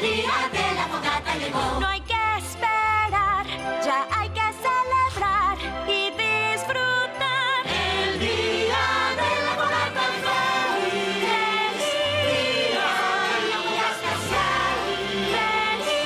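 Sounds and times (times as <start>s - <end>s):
choir singing festive song: 0.0s - 2.3s, 7.5s - 16.0s.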